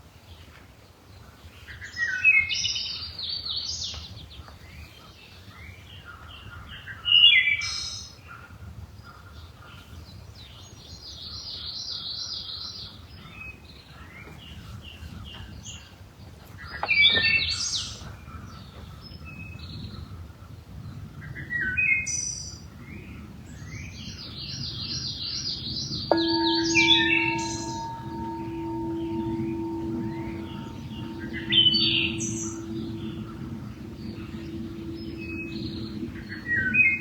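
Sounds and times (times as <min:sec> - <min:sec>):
bell-like tone ringing: 0:26.1 - 0:37.0
steady low hum: 0:26.1 - 0:37.0.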